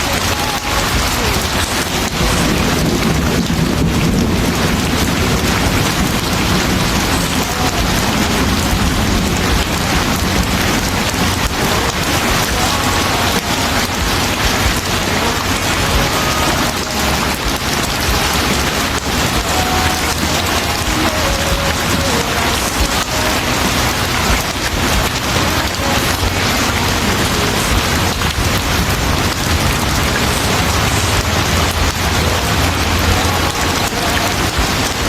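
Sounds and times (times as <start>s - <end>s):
heavy rain: 0.0s - 35.0s
low rumble: 0.0s - 35.0s.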